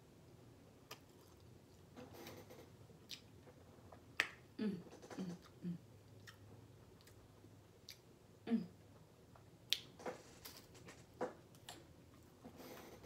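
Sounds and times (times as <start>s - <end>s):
person chewing: 0.8s - 1.8s, 3.0s - 3.3s, 5.4s - 8.1s.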